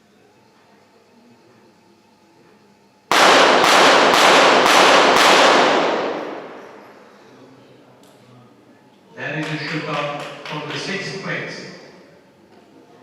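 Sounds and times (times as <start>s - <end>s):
gunshot echo: 3.1s - 7.2s
rapid pistol shots: 3.1s - 7.2s.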